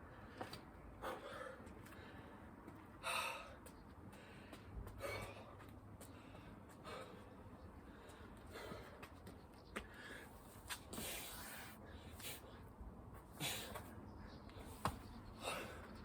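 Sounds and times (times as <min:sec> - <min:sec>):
man breathing hard: 0:00.1 - 0:09.2, 0:09.8 - 0:12.7, 0:13.3 - 0:13.9, 0:15.2 - 0:16.0.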